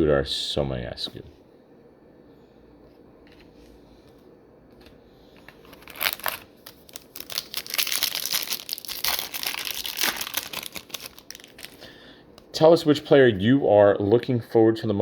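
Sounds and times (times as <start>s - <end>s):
foil wrapper tearing and crinkling: 5.6s - 11.9s.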